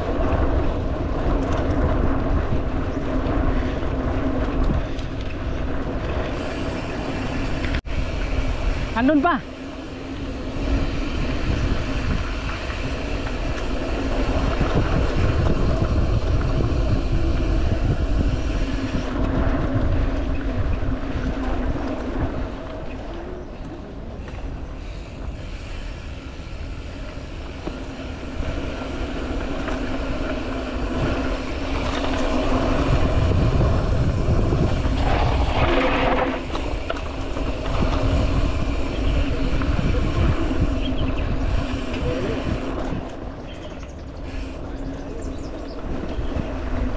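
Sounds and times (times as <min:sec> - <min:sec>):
bike tyres and frame rattling: 0:00.0 - 0:46.9
wind buffeting microphone: 0:00.0 - 0:46.9.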